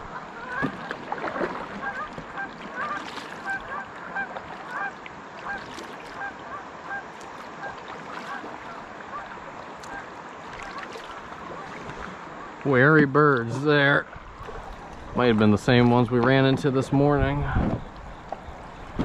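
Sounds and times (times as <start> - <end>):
geese honking: 0.0 - 1.0, 1.6 - 11.8.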